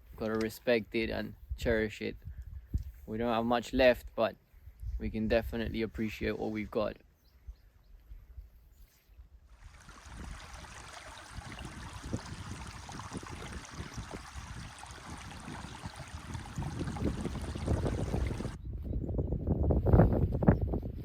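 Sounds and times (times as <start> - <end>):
running water rushing: 9.5 - 18.6.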